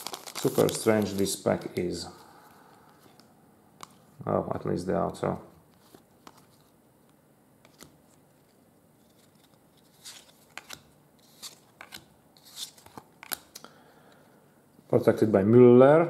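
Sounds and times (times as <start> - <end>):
trading cards scraping: 9.0 - 13.7.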